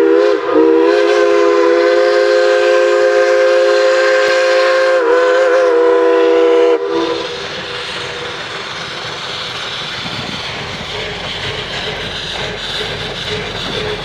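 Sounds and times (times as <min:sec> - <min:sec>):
steam locomotive whistle: 0:00.0 - 0:14.0
steady rushing noise: 0:07.0 - 0:14.0.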